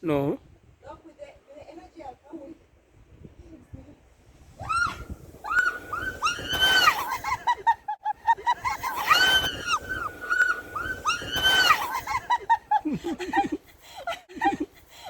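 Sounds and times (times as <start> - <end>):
woman screaming: 4.6 - 7.5, 8.6 - 12.3.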